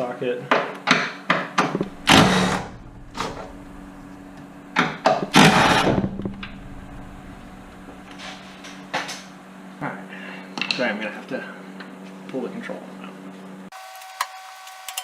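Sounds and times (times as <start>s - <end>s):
power tool rattling bursts: 1.8s - 4.4s, 5.2s - 8.9s.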